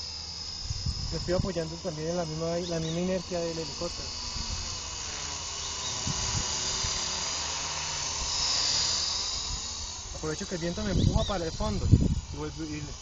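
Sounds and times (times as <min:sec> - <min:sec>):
model helicopter rotor whine: 0:00.0 - 0:13.0
wind buffeting microphone: 0:00.6 - 0:01.8, 0:05.9 - 0:07.2, 0:09.4 - 0:13.0.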